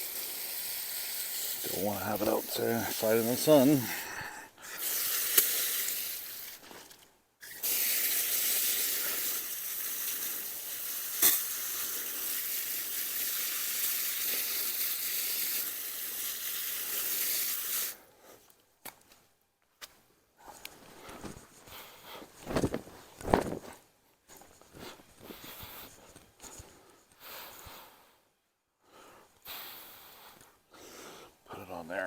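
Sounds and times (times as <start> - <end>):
garden hose spraying water: 0.0 - 18.1.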